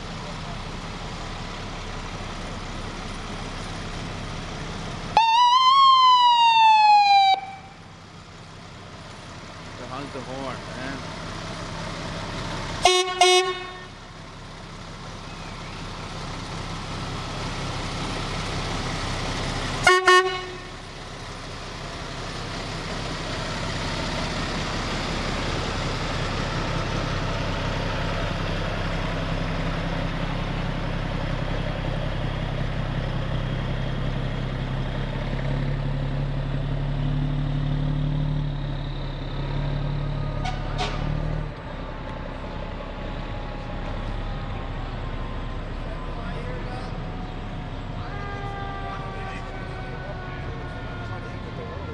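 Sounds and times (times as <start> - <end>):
diesel engines rumbling: 0.0 - 51.9
fire truck horn blasts: 12.8 - 14.0, 19.8 - 21.0, 40.3 - 41.2, 47.8 - 51.9.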